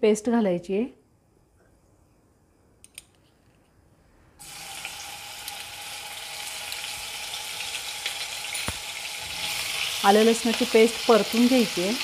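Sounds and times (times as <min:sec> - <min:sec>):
paste sizzling in hot oil: 0:04.4 - 0:12.0.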